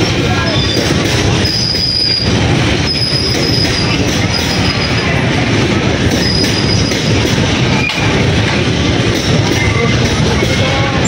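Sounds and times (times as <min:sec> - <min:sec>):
train wheels rumbling on rails: 0:00.0 - 0:11.0
high wheel squeals: 0:00.3 - 0:05.2, 0:06.1 - 0:08.2, 0:09.4 - 0:10.7.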